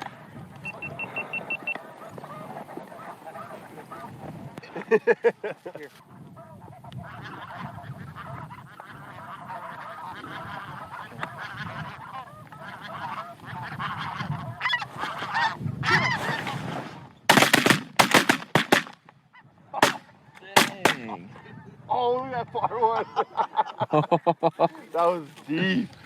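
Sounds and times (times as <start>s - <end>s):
geese honking: 0.0s - 4.8s, 5.8s - 16.6s, 17.3s - 21.2s
shotgun blasts: 17.3s - 19.0s, 19.8s - 21.1s.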